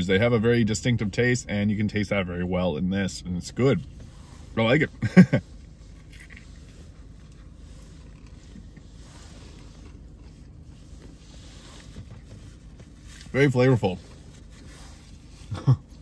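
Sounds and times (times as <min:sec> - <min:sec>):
low rumble inside car: 0:00.0 - 0:16.0
man chewing food: 0:05.6 - 0:13.0.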